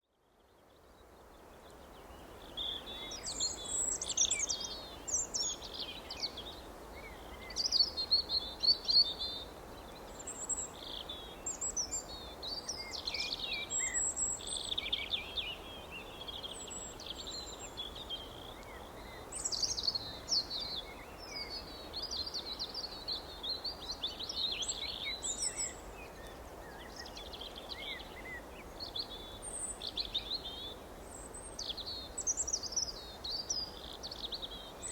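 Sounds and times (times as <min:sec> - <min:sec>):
faint background hiss: 0:00.0 - 0:34.9.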